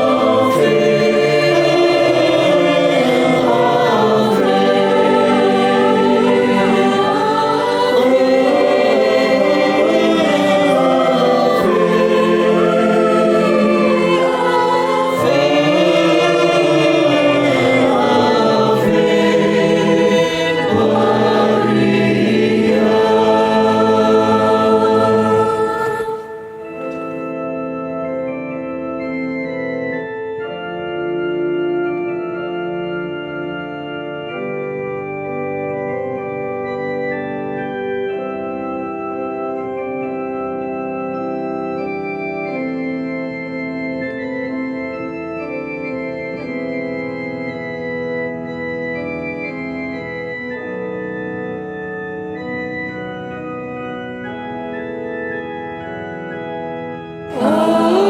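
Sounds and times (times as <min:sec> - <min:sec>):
choir singing chord: 0:00.0 - 0:27.7, 0:52.3 - 0:58.0
organ sustained chords: 0:00.0 - 0:58.0.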